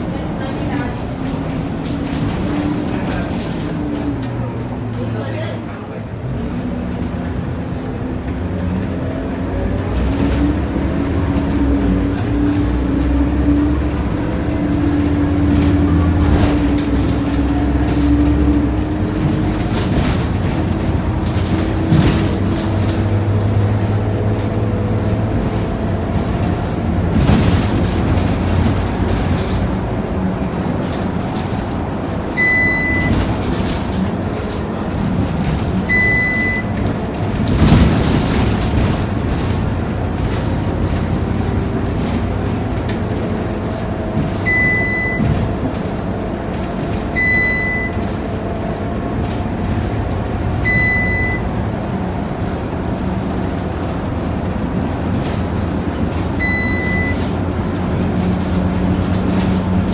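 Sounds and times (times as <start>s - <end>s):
bus diesel engine rumbling: 0.0s - 59.9s
short electronic beep: 32.4s - 33.2s, 35.9s - 36.7s, 44.5s - 45.3s, 47.2s - 48.0s, 50.6s - 51.5s, 56.4s - 57.2s.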